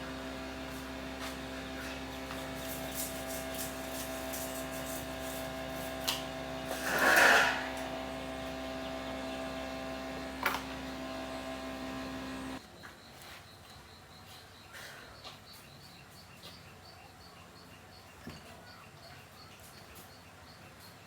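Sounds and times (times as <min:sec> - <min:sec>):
electric machine humming: 0:00.0 - 0:12.6
short scraping burst: 0:00.7 - 0:09.5.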